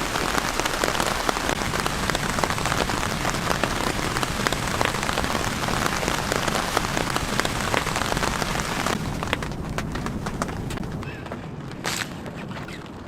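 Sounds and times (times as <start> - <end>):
raindrops ticking: 0.0 - 11.1
steady rain hiss: 0.0 - 11.1.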